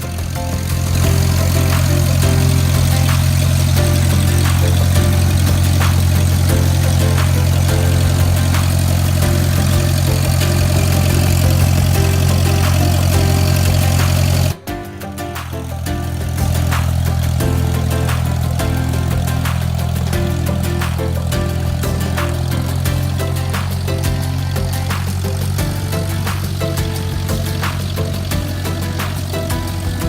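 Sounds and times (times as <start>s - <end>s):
propeller plane engine drone: 0.0s - 14.6s.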